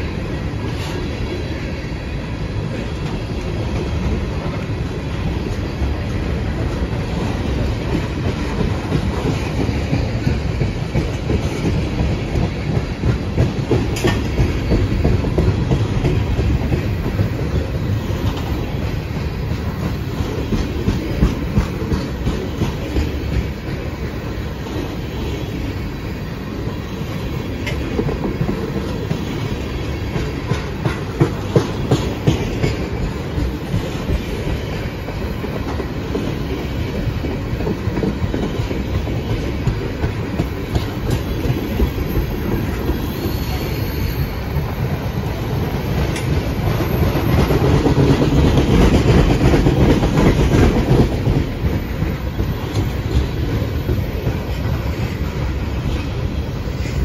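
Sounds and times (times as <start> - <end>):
train wheels rumbling on rail: 0.0 - 57.0
wheels clicking over rail joints: 5.5 - 24.9, 27.5 - 43.2
faint wheel squeal: 41.8 - 44.5.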